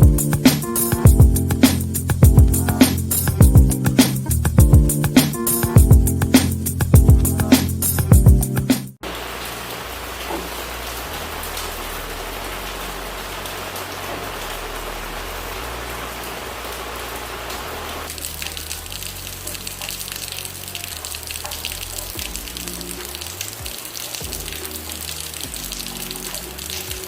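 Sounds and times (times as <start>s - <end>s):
music intro: 0.0s - 9.0s
steady rain falling: 9.0s - 27.0s
soft background music: 18.1s - 27.0s.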